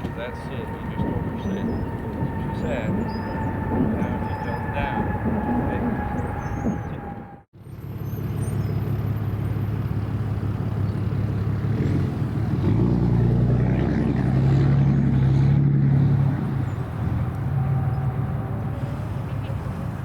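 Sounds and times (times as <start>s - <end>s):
jet engines rumbling: 0.0s - 8.0s, 15.0s - 20.0s.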